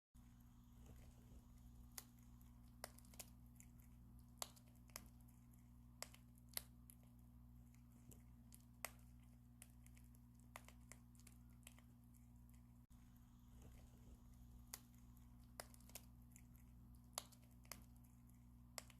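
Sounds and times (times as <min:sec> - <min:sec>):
steady low hum: 0:00.2 - 0:18.9
teeth cracking seed shells: 0:01.8 - 0:12.6, 0:14.6 - 0:18.9.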